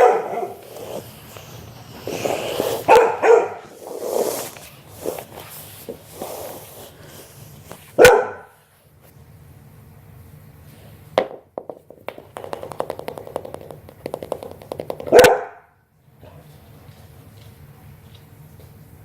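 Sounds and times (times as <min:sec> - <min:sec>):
dog barking: 0:00.0 - 0:00.6, 0:02.8 - 0:03.7, 0:08.0 - 0:08.6, 0:15.1 - 0:15.7.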